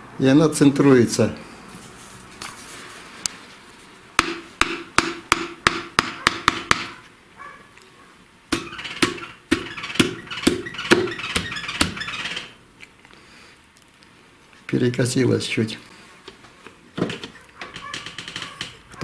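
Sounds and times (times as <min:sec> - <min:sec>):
hammer tapping metal: 0:04.2 - 0:07.0, 0:08.5 - 0:12.4.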